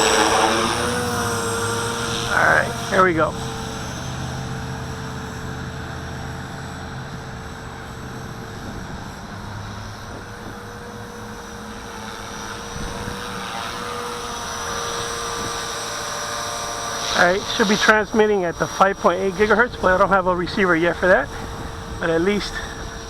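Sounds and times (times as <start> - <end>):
rc helicopter whining and whirring: 0.0 - 23.0.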